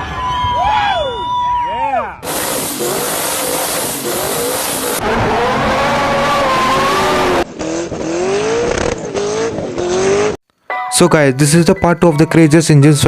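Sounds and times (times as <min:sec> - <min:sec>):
car engines revving high: 0:02.2 - 0:10.4.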